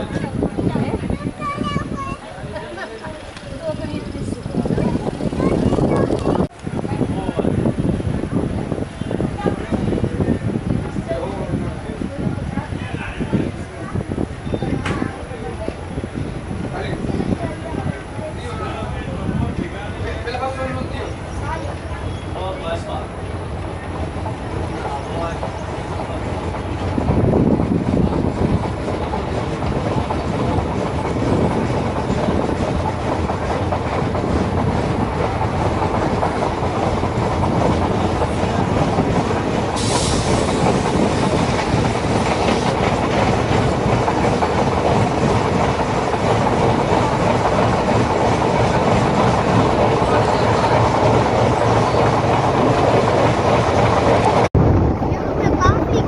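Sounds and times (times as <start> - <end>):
train wheels clattering over rail joints: 14.0 - 54.5
brief hiss: 39.8 - 40.8.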